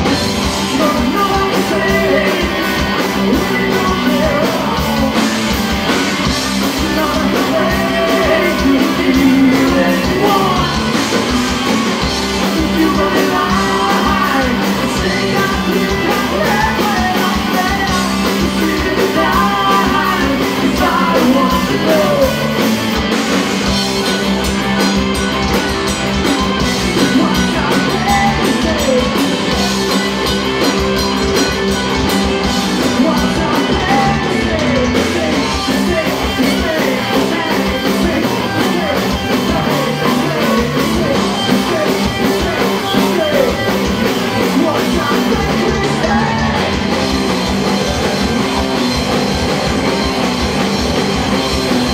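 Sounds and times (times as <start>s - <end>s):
drums hitting: 0.0s - 51.9s
live rock band playing: 0.0s - 51.9s.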